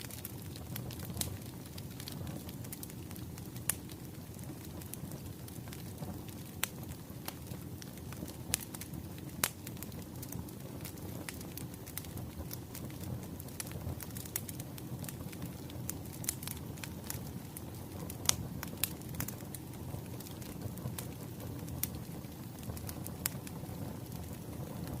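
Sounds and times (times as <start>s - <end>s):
fire popping and snapping: 0.0s - 25.0s
fire rumbling: 0.0s - 25.0s.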